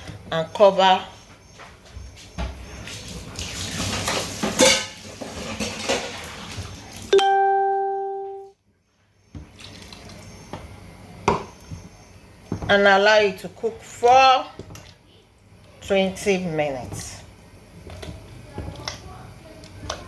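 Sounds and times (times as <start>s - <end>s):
cookware and utensils clattering: 2.9s - 6.8s
bell-like ding: 7.2s - 8.5s.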